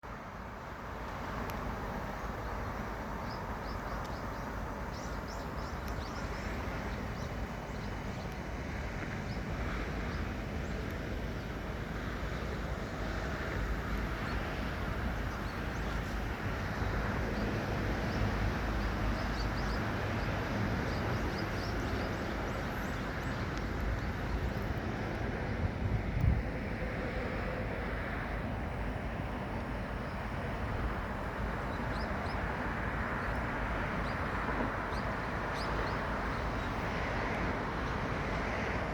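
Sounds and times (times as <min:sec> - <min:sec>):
waves: 0:00.0 - 0:38.9
wind: 0:00.0 - 0:38.9.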